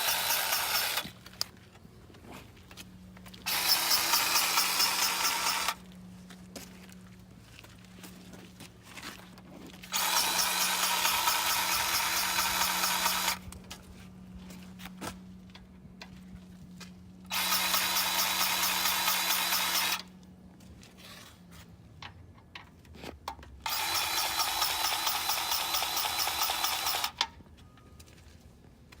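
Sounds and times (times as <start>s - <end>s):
grease gun motor running: 0.0s - 1.2s, 3.4s - 5.8s, 9.9s - 13.4s, 17.3s - 20.1s, 23.6s - 27.2s.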